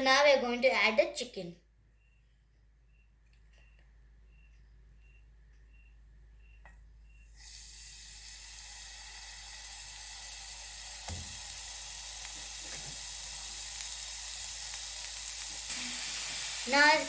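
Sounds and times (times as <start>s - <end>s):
chicken sizzling in a frying pan: 7.4s - 17.0s.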